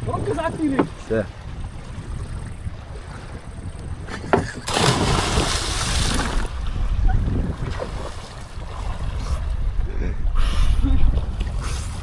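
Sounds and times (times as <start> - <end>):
wind on microphone: 0.0 - 12.0
water splash: 4.5 - 9.1.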